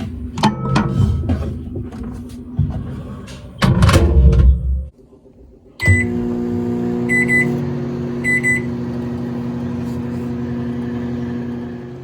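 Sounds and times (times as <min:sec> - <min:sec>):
microwave double beeps: 0:05.8 - 0:06.2, 0:07.0 - 0:07.6, 0:08.2 - 0:08.8
microwave oven humming: 0:05.8 - 0:12.0.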